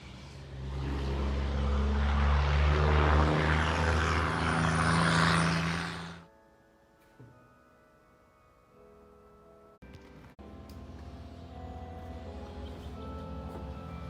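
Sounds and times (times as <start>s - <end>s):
loud engine running: 0.0s - 6.2s.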